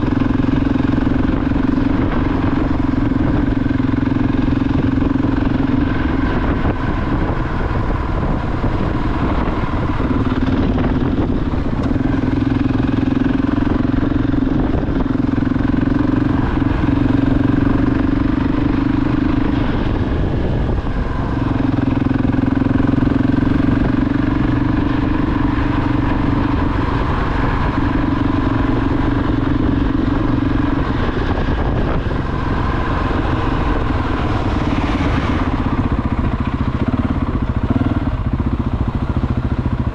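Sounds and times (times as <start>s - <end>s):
motorcycle engine running: 0.0s - 39.9s
rushing wind noise: 0.0s - 39.9s.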